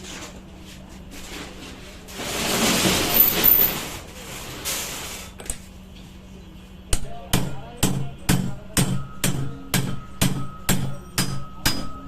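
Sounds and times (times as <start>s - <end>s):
metal scraping and rattling: 1.1s - 5.4s.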